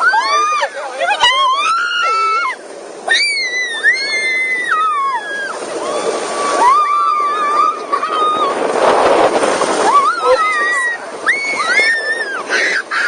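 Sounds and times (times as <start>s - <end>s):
child squealing: 1.4s - 8.6s, 9.8s - 13.0s.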